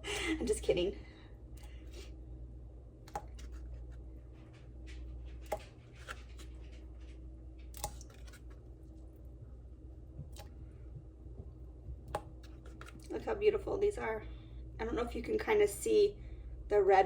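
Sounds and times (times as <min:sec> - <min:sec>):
low steady hum: 0:00.0 - 0:17.0
berries clicking in water bowl: 0:03.1 - 0:03.5, 0:07.6 - 0:08.4.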